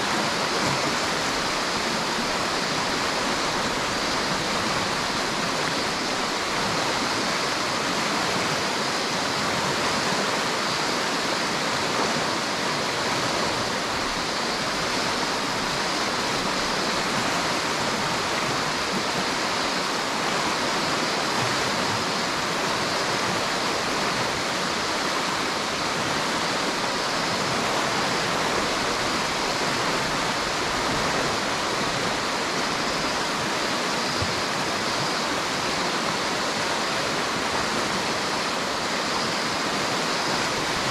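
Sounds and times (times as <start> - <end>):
river water rushing over rocks: 0.0 - 40.9.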